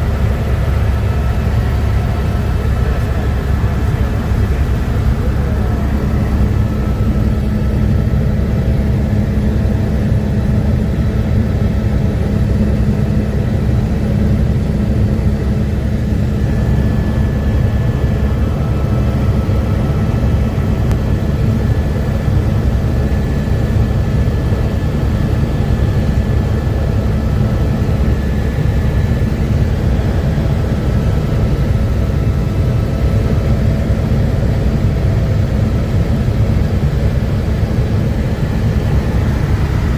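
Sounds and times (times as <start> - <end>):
faint high whine: 0.0 - 11.4
helicopter rotor and engine noise: 0.0 - 39.9.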